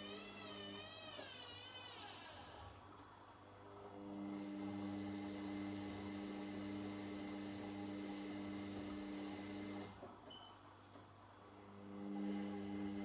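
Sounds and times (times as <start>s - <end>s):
washing machine electric hum: 0.0s - 13.0s.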